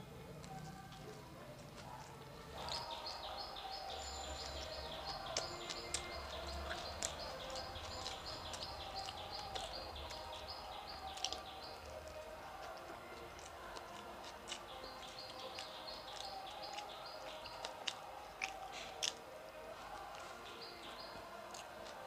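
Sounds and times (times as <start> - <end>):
clicks of chewing toast: 0.2 - 22.0
bird chirping: 1.9 - 13.5, 14.5 - 18.6, 19.9 - 22.0.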